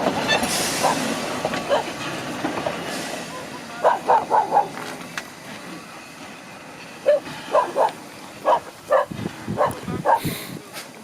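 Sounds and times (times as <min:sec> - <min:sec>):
dog barking: 0:01.7 - 0:01.9, 0:03.8 - 0:04.8, 0:07.1 - 0:10.3.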